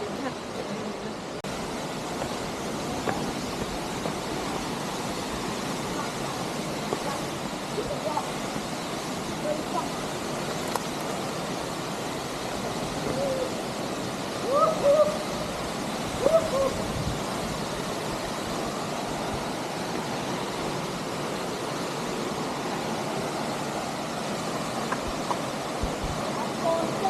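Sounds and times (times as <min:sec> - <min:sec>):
waterfall rushing: 0:00.0 - 0:27.0
hoot-like calls: 0:12.8 - 0:17.0.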